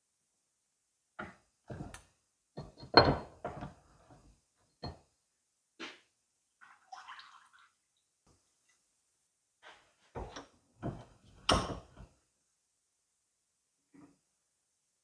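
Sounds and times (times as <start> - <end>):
metal parts knocking and clunking: 2.6 - 3.8.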